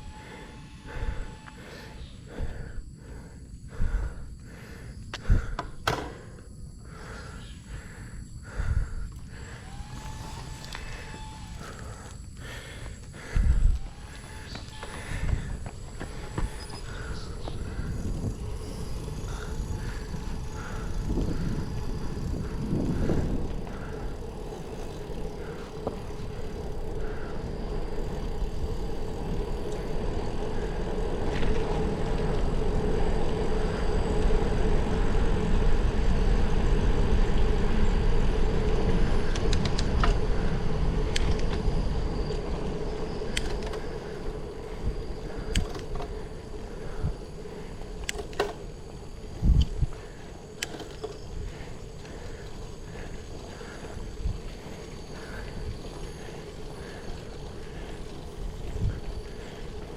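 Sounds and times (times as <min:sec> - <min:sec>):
bicycle tyre rumble on road: 0:00.0 - 0:59.9
steady hum: 0:00.0 - 0:59.9
wind rushing over microphone: 0:13.2 - 0:48.2, 0:49.0 - 0:51.9, 0:58.0 - 0:59.9
sharp clicks: 0:43.3 - 0:43.8, 0:45.4 - 0:46.2, 0:48.0 - 0:48.7.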